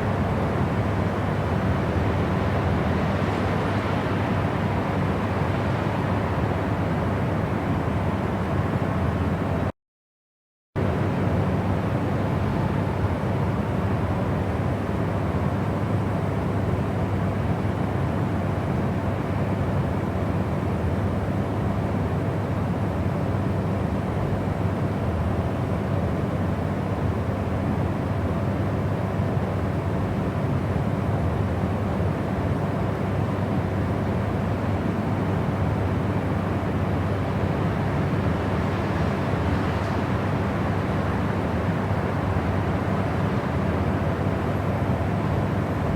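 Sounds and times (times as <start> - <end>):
faint steady hum tones: 0.0 - 9.7, 10.8 - 45.9
deep rumbling white noise: 27.4 - 45.9.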